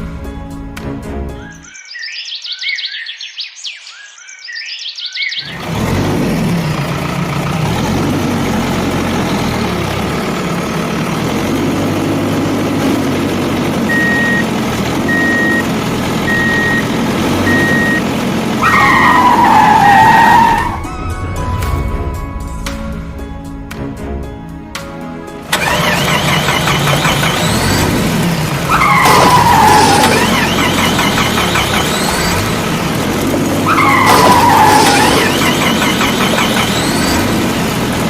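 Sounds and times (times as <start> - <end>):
reversing beeps: 13.9 - 14.4, 15.1 - 18.0
cartoon engine running roughly: 25.5 - 38.0
loud wavering squeal: 33.6 - 37.4.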